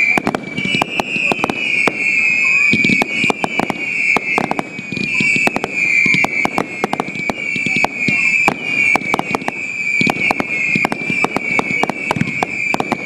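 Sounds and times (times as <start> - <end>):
firework bangs and crackles: 0.0 - 13.0
high firework whistle: 0.0 - 13.0.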